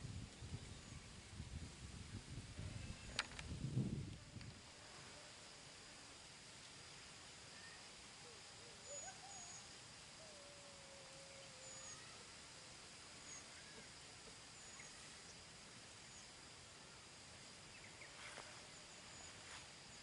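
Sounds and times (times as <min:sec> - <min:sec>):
quiet steady hiss: 0:00.0 - 0:20.0.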